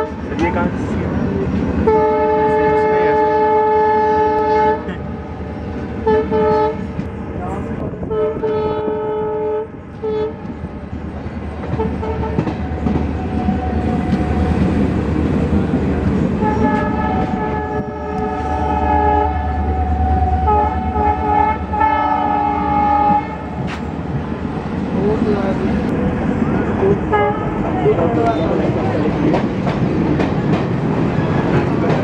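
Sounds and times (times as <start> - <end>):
train rumble: 0.0 - 32.0
train horn blasts: 1.8 - 4.9, 6.0 - 7.0, 8.0 - 10.4, 11.7 - 12.5, 16.4 - 23.5, 27.1 - 27.6.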